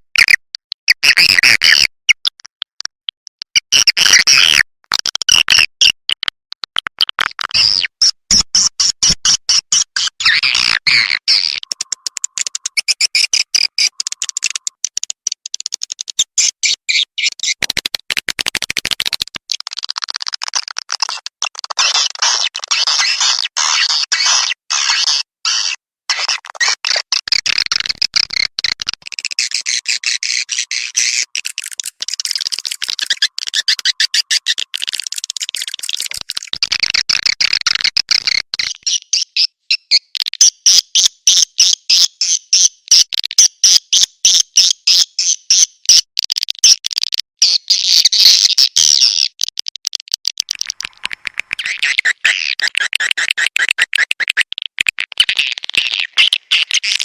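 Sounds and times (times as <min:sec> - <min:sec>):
swiftlets chirping: 0:11.6 - 0:15.0, 0:27.7 - 0:37.9
fast evenly spaced pulses: 0:29.1 - 0:36.6.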